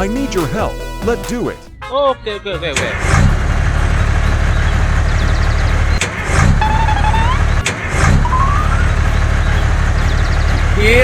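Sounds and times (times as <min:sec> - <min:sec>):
vehicle engine rumbling: 0:02.9 - 0:11.0
rising squeaky tones: 0:03.2 - 0:10.7.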